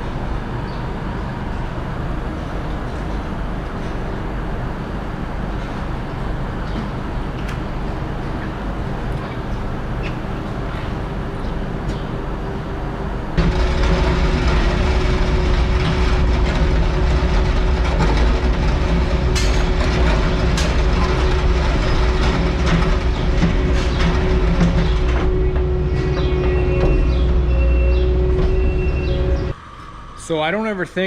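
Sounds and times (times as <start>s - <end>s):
farm machinery engine rumble: 13.0s - 29.6s
machinery clanking and rattling: 13.3s - 29.6s.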